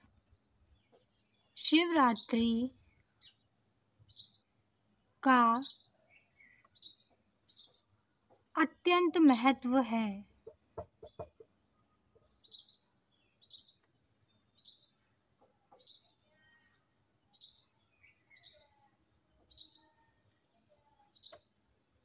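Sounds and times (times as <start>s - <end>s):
bird chirping: 0.0s - 8.6s, 10.4s - 22.0s.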